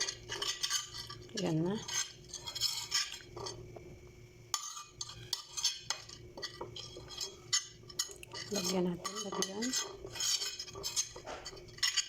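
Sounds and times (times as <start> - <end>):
faint steady hum: 0.0 - 12.0
spoon clinking against dishes: 4.5 - 12.0.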